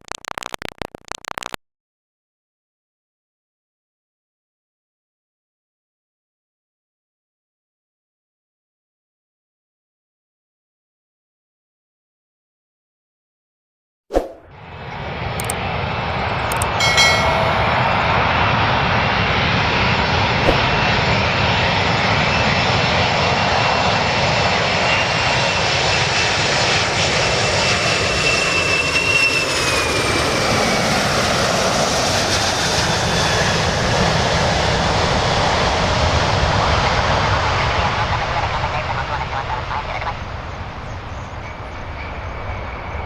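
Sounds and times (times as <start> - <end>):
airplane engines running: 14.5 - 43.0
high whine falling in pitch: 16.6 - 19.1.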